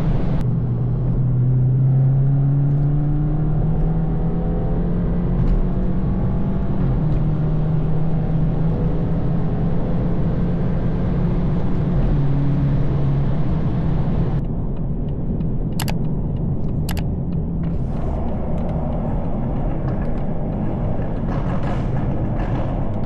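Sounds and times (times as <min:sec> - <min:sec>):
car engine while driving: 0:00.0 - 0:23.0
sharp clicks: 0:14.4 - 0:18.8.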